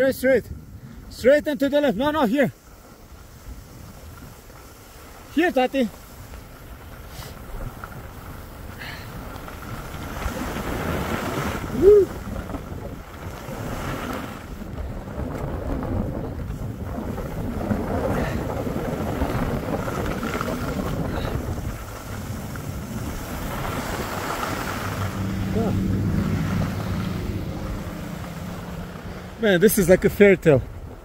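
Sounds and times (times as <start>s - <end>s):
wind rushing over microphone: 0.0s - 31.0s
person shouting woo: 11.7s - 12.2s.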